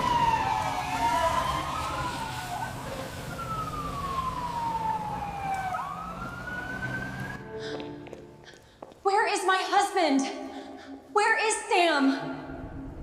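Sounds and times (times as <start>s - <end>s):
ambulance siren wailing: 0.0s - 7.5s.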